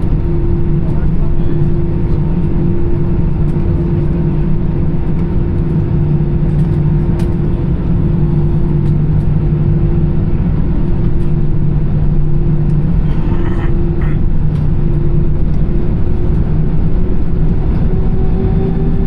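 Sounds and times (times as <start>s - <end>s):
jet engines idling in cabin: 0.0s - 19.0s.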